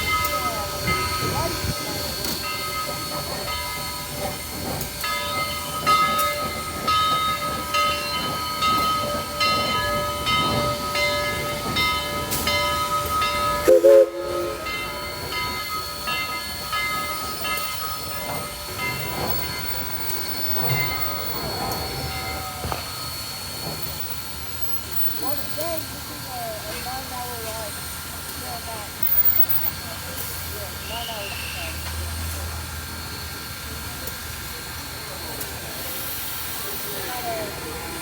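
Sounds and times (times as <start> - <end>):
wheels clicking over rail joints: 0.0 - 30.4
train wheels squealing: 14.3 - 26.0, 29.0 - 33.8.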